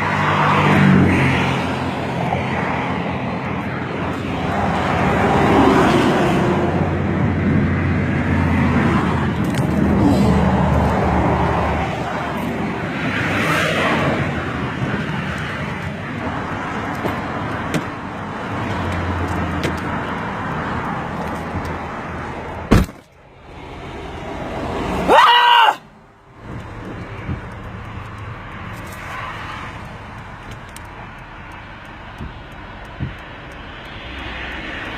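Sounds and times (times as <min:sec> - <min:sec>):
road traffic noise: 0:00.0 - 0:34.9
loud pitched cry: 0:25.1 - 0:25.8.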